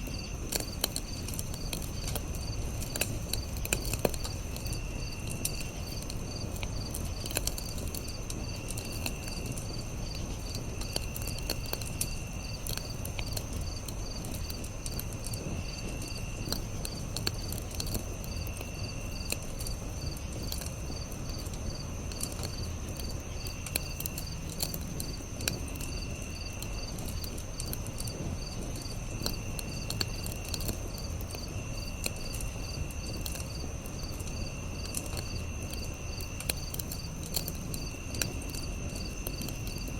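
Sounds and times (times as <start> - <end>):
campfire crackling and popping: 0.0 - 39.9
crickets chirping: 0.0 - 39.9.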